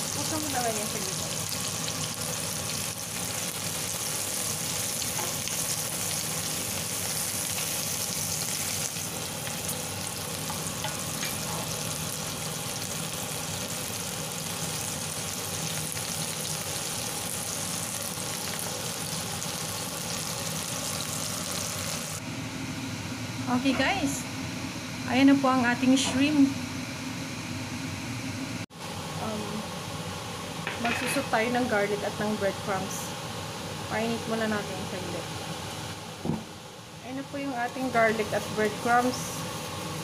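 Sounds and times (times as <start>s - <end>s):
shrimp sizzling in a pan: 0.0s - 22.2s, 37.3s - 40.0s.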